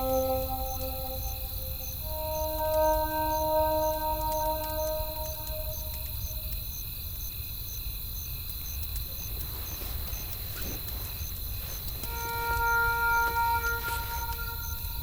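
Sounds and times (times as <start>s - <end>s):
held music notes: 0.0s - 6.5s, 12.1s - 15.0s
crickets chirping: 0.0s - 15.0s.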